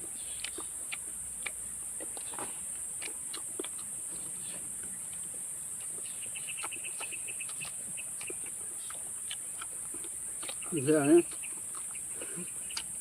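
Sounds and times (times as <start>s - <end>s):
insects droning: 0.0s - 13.0s
bird chirping: 4.2s - 13.0s.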